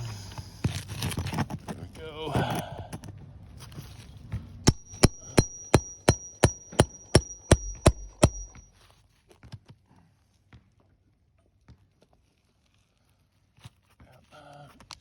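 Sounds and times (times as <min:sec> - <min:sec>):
hand tool knocking on shingles: 0:04.7 - 0:08.6.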